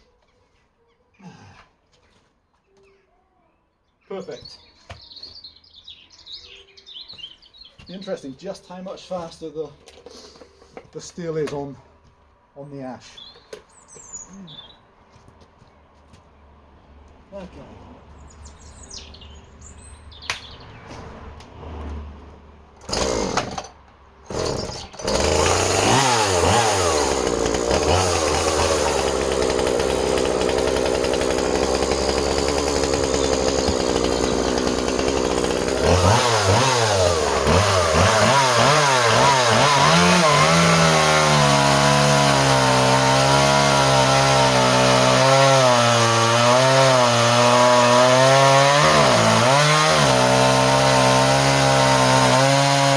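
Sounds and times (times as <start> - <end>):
chainsaw cutting wood: 22.8 - 52.9
chainsaw running: 22.8 - 52.9.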